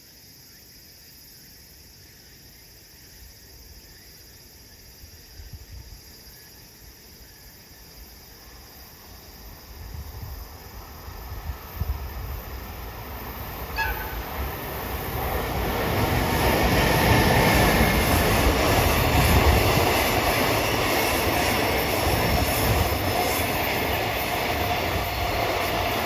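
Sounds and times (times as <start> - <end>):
insect chirring: 3.0 - 26.0
train rumbling: 8.4 - 26.0.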